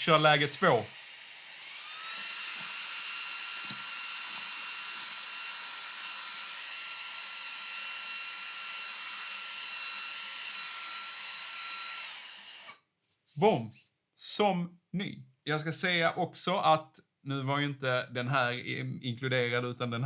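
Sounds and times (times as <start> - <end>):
vacuum cleaner motor whine: 0.0 - 8.5.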